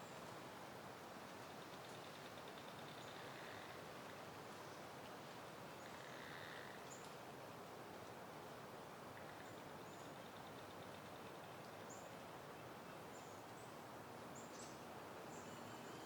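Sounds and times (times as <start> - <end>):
faint breeze: 0.0 - 16.0
faint bird chirps: 14.4 - 16.0.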